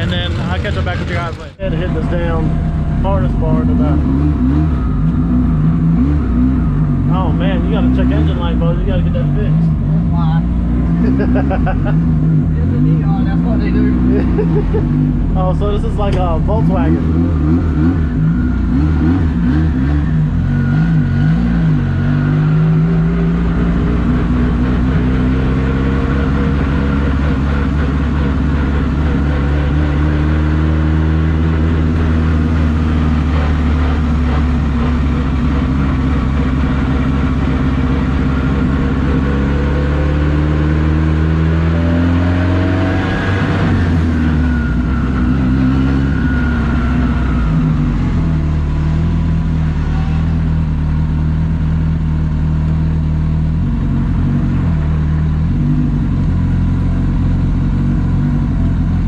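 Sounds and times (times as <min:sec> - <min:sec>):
steady low hum: 0:00.0 - 0:18.4
car engine revving: 0:00.0 - 0:59.0.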